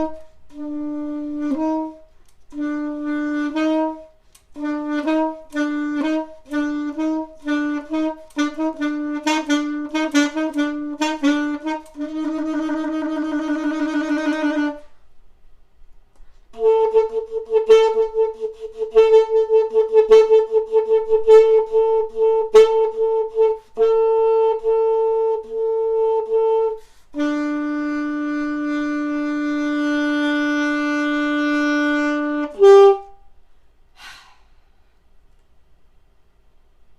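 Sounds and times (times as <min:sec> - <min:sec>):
solo saxophone: 0:00.0 - 0:15.1, 0:16.2 - 0:33.4.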